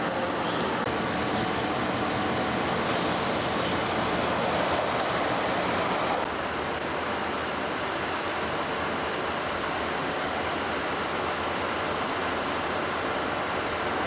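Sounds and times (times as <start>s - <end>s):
diesel railcar running past: 0.0s - 14.0s.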